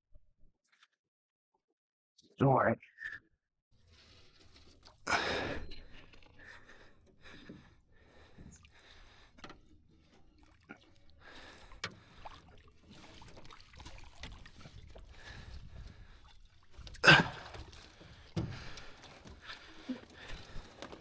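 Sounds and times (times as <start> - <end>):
water lapping around boat: 3.8 - 21.0
light knocks and splashes: 7.5 - 21.0.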